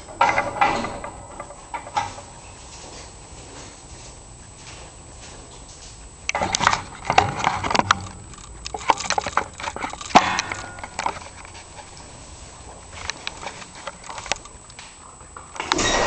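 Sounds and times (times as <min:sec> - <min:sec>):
metal roller wheel clattering: 0:00.0 - 0:02.4, 0:06.4 - 0:12.1.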